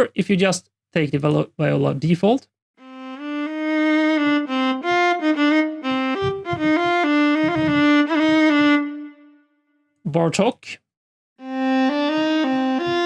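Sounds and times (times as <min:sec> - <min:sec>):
solo viola bowed melody: 0:02.8 - 0:09.6, 0:11.4 - 0:13.0.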